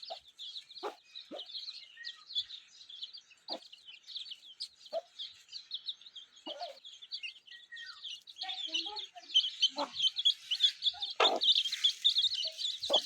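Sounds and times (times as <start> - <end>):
hen clucking: 0.0 - 1.6, 3.3 - 4.0, 4.7 - 5.5, 6.4 - 7.4, 8.4 - 13.0
chicks cheeping: 0.0 - 13.0.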